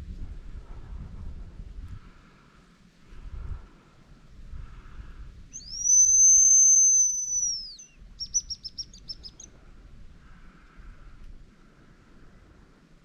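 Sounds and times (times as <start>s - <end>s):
high decoy whistle: 5.5s - 9.4s.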